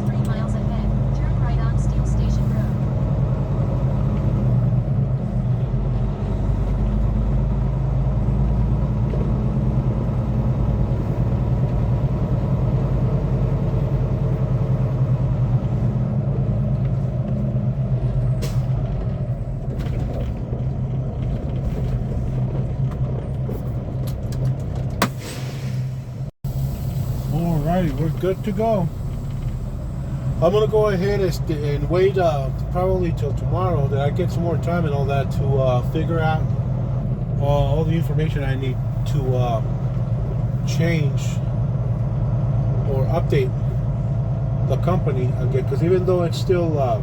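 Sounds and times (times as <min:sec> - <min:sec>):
road noise: 0:00.0 - 0:47.0
truck diesel engine running: 0:00.0 - 0:47.0.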